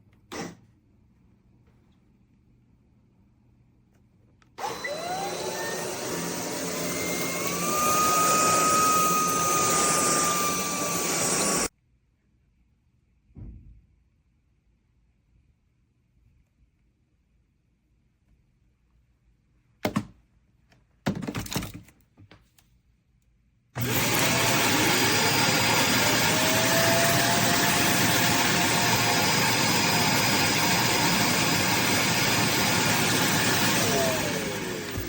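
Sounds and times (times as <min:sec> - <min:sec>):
vacuum cleaner motor whine: 0:04.6 - 0:11.7, 0:23.8 - 0:35.0.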